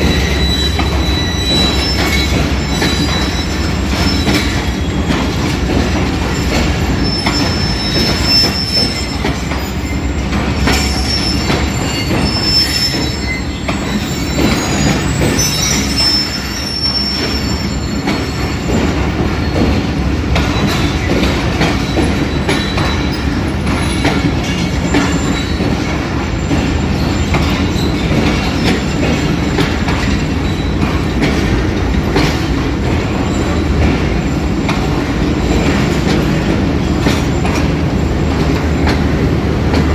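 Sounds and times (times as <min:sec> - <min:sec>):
high wheel squeals: 0:00.0 - 0:05.4, 0:06.2 - 0:31.6
train wheels clicking over rail joints: 0:00.0 - 0:39.9.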